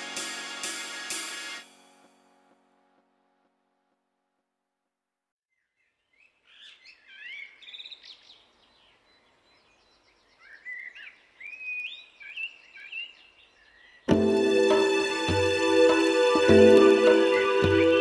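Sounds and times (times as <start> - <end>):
music: 0.0 - 3.5, 14.1 - 18.0.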